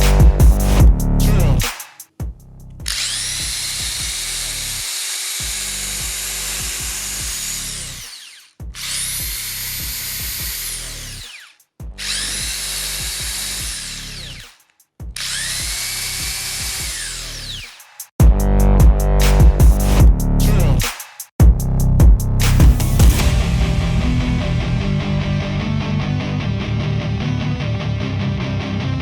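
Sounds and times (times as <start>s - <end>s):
impact driver motor whine: 2.9s - 14.5s, 15.2s - 17.7s.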